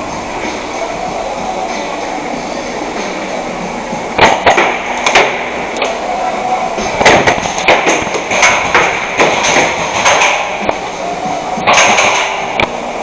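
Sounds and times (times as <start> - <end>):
steady background noise: 0.0 - 13.0
airsoft gun shots: 4.2 - 5.4, 11.7 - 12.5.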